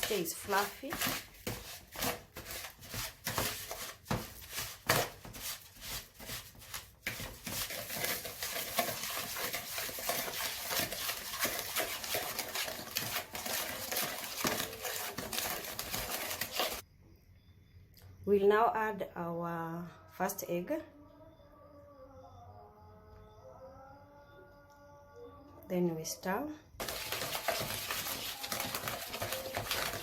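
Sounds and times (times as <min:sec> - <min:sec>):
wooden spoon scraping a bowl: 0:00.0 - 0:16.8, 0:26.8 - 0:30.0.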